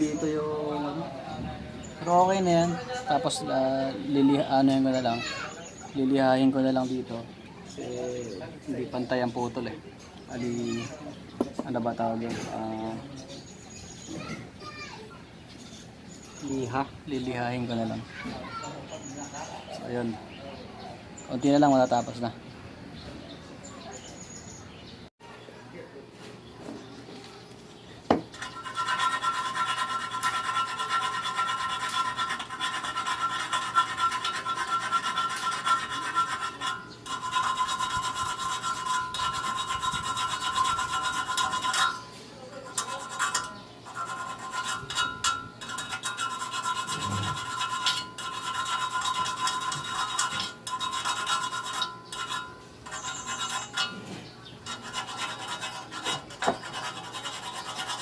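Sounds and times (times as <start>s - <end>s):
sanding metal rasping: 28.3s - 58.0s.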